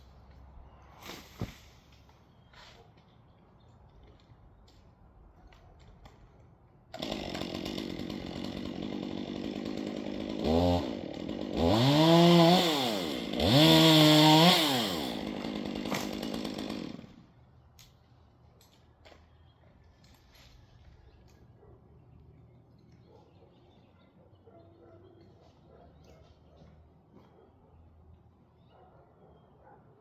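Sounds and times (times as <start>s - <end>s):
chainsaw idling and revving: 6.9s - 17.3s.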